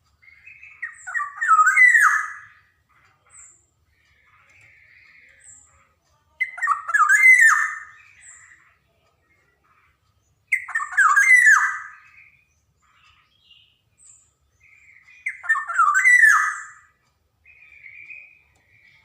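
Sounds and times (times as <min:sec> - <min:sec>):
bird calling with fluty whistles: 0:00.3 - 0:02.6, 0:06.4 - 0:08.4, 0:10.5 - 0:12.3, 0:14.7 - 0:16.9.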